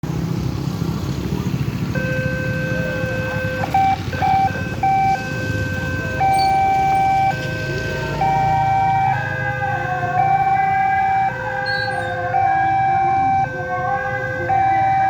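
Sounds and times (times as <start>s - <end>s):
low traffic rumble: 0.0s - 15.0s
level crossing warning alarm: 1.9s - 15.0s.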